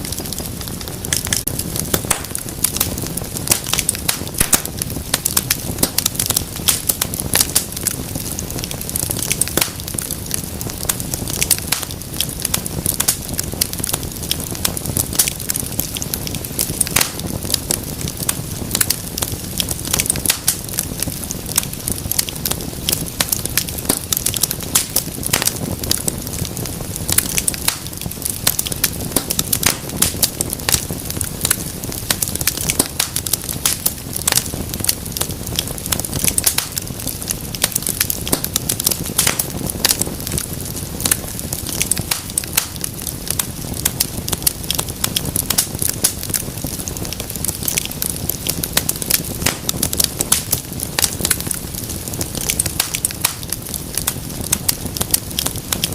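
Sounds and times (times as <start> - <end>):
low rumble of flame: 0.0 - 55.9
wood fire crackling: 0.0 - 55.9.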